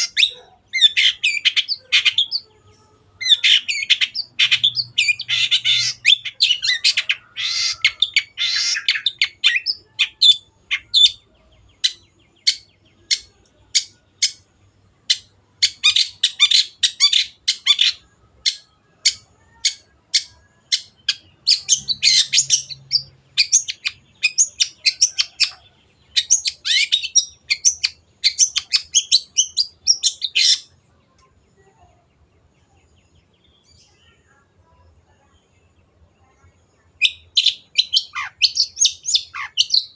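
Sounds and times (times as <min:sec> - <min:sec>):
shrike singing harsh chatter: 0:00.0 - 0:14.5, 0:15.1 - 0:30.8.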